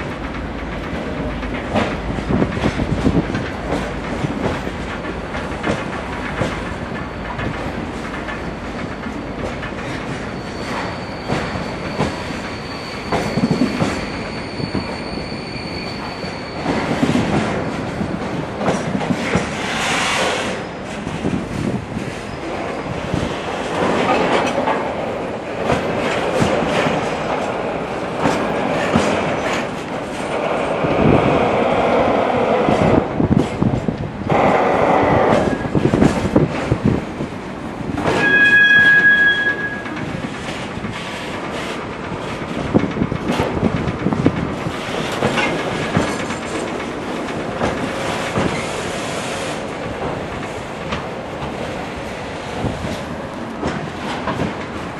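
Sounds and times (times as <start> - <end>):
train rumble: 0.0 - 54.9
train wheels clacking over rail joints: 0.0 - 54.9.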